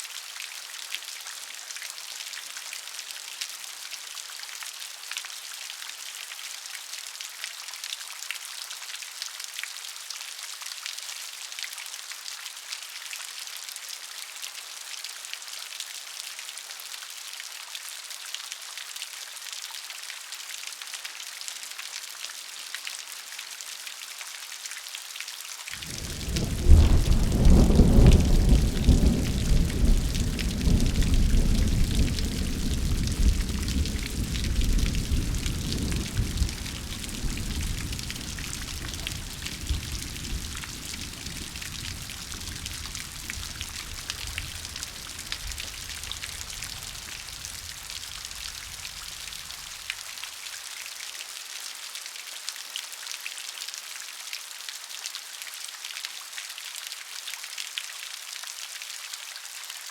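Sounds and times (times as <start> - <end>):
rain falling: 0.0 - 59.9
thunder rolling: 25.8 - 47.6.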